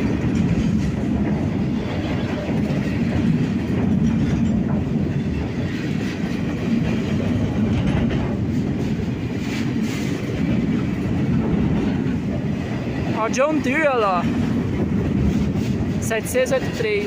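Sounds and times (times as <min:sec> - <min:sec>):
wheels clicking over rail joints: 0:00.0 - 0:13.2
freight train rumbling past: 0:00.0 - 0:17.0.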